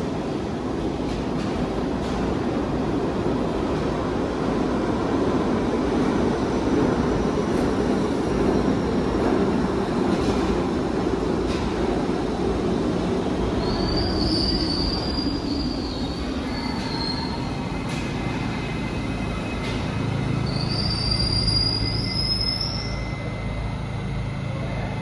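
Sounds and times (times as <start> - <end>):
subway train rumbling: 0.0 - 25.0
steel wheels squealing on rails: 12.6 - 25.0.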